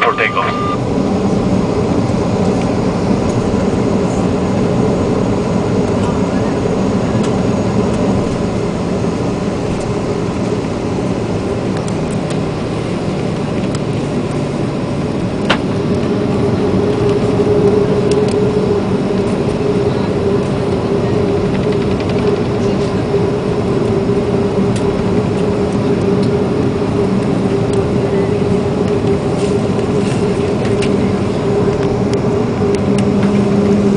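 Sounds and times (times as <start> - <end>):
jet engines running: 0.0 - 33.9.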